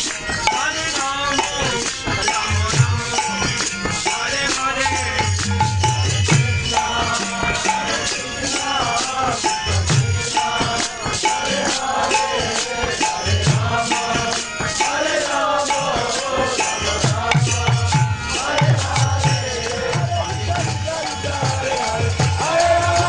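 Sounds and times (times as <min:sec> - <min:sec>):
voices chanting a melody: 0:06.2 - 0:23.0.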